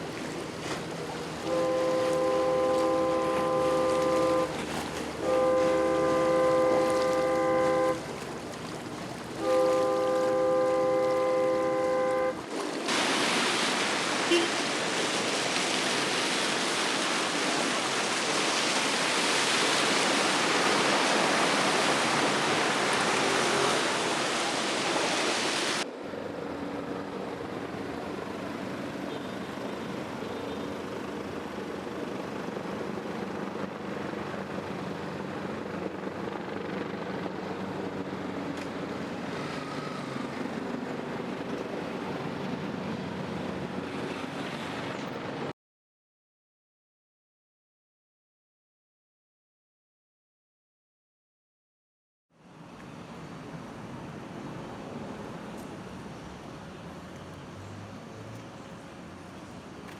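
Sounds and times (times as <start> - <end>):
water rushing: 0.0 - 45.5.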